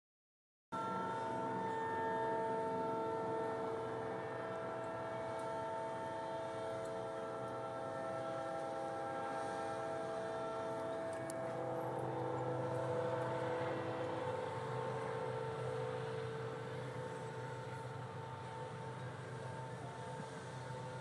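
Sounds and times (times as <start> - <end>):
engine whine over low rumble: 0.8 - 21.0.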